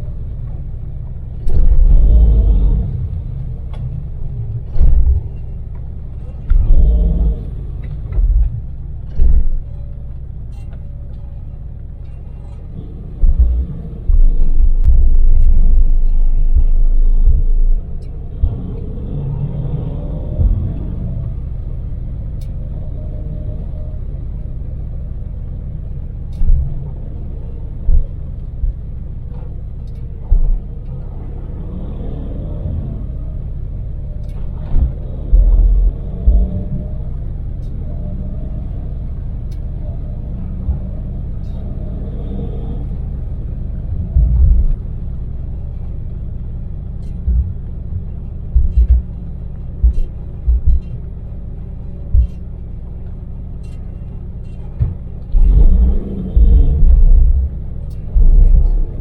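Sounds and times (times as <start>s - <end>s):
van engine and road rumble: 0.0s - 59.0s
loud low thumps: 1.4s - 9.8s, 12.8s - 21.4s, 34.6s - 37.3s, 43.9s - 45.1s, 47.1s - 53.0s, 54.7s - 59.0s
faint clicks: 3.6s - 24.7s, 32.6s - 59.0s.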